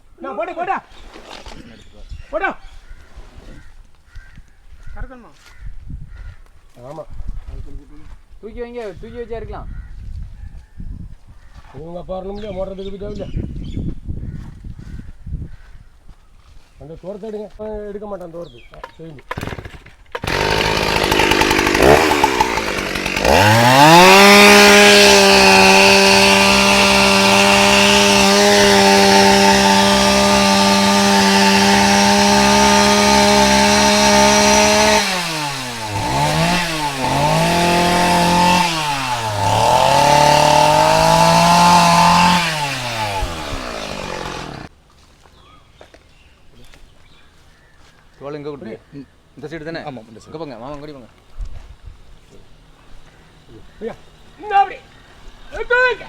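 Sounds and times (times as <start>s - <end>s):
chainsaw revving: 19.2s - 44.7s.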